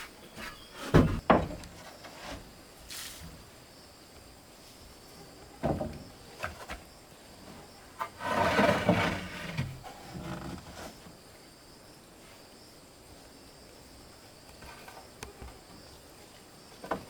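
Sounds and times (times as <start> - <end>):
wood scraping against wood: 0.0 - 3.1, 7.4 - 11.2
insects droning: 0.0 - 17.0.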